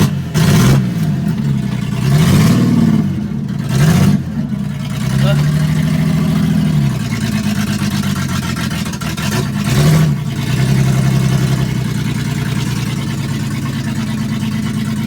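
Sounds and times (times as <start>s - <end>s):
pickup engine running and revving: 0.0s - 15.0s
person talking: 5.2s - 5.5s.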